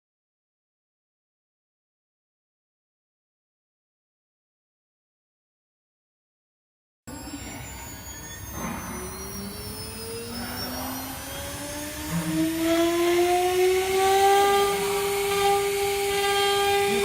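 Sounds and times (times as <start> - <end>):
spindle motor whine spinning up: 7.1 - 17.0.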